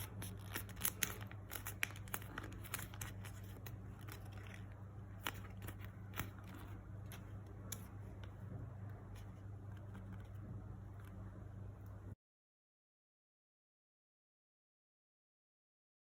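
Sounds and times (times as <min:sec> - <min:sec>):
paper being folded and creased: 0:00.0 - 0:07.4
steady low hum: 0:00.0 - 0:12.2.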